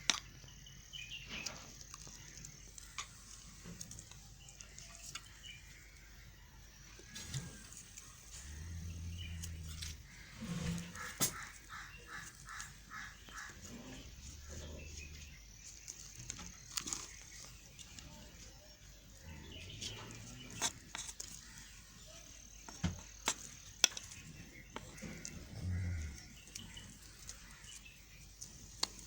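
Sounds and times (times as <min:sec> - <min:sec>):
animal calling: 0:07.1 - 0:15.4, 0:24.9 - 0:27.8.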